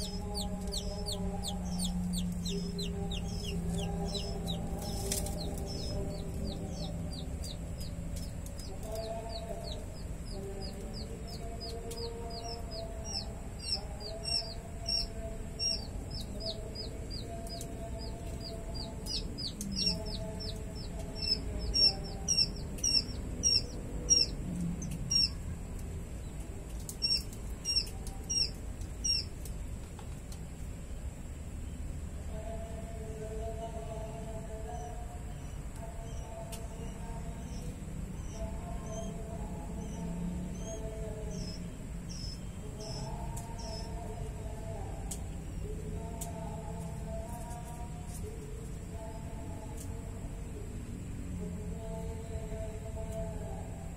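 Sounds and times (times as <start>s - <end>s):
small bird chirping: 0.0s - 25.5s, 26.1s - 29.5s, 34.7s - 44.0s
steady low hum: 0.0s - 53.9s
wavering lower bird calls: 19.0s - 25.4s, 26.9s - 29.3s.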